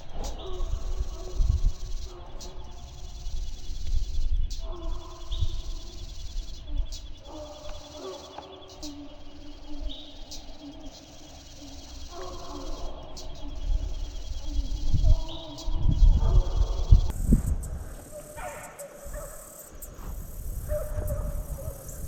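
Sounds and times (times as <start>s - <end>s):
high insect trill: 0.0s - 22.0s
hounds baying: 6.8s - 17.0s, 18.1s - 19.7s, 20.6s - 22.0s.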